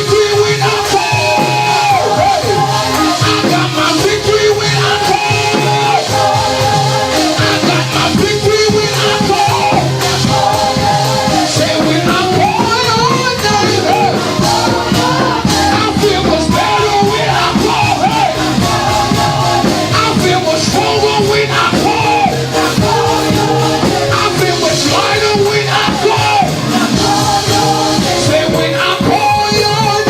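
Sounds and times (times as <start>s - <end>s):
gospel worship music: 0.0s - 30.0s
voices singing: 0.0s - 30.0s.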